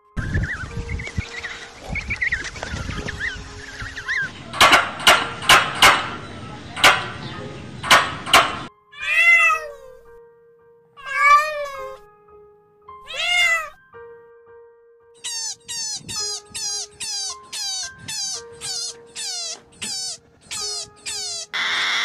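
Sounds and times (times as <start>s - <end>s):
sharp loud clicking bursts: 4.2s - 8.7s
cat meowing: 8.9s - 10.1s, 11.0s - 12.0s, 13.0s - 13.8s, 15.2s - 21.6s.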